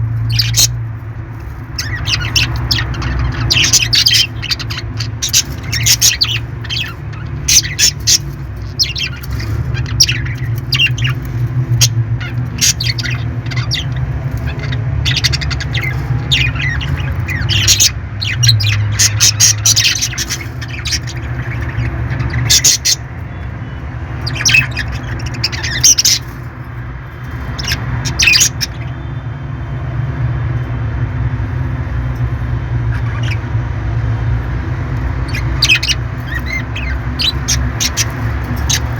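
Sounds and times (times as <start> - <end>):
parrots squawking and chirping: 0.0 - 38.9.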